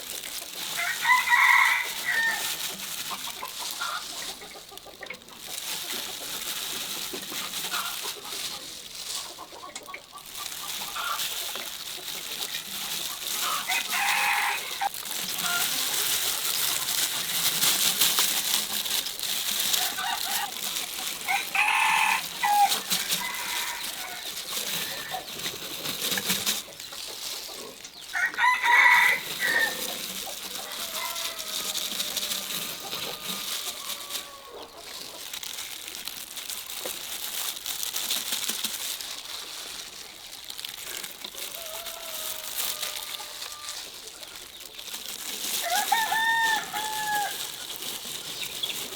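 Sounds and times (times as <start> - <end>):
hens clucking: 0.0 - 48.9
rooster crowing: 0.7 - 2.6, 13.4 - 15.8, 19.8 - 20.6, 21.2 - 25.3, 28.1 - 34.7, 41.4 - 43.9, 45.6 - 47.5.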